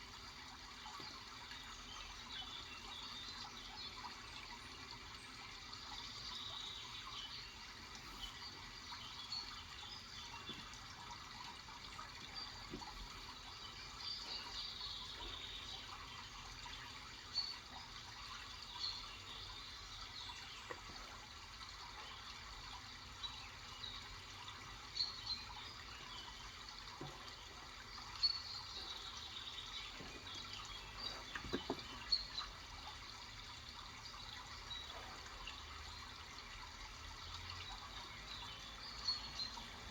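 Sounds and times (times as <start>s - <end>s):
water trickling: 0.0s - 39.9s
birds chirping: 6.5s - 17.8s, 25.0s - 33.0s.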